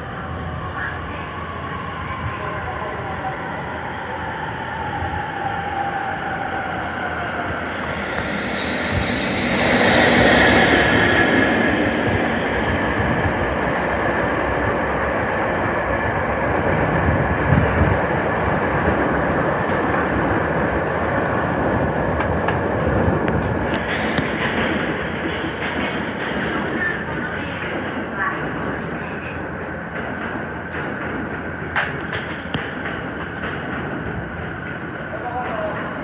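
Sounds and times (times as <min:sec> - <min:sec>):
high tone sliding down: 0:06.9 - 0:12.0.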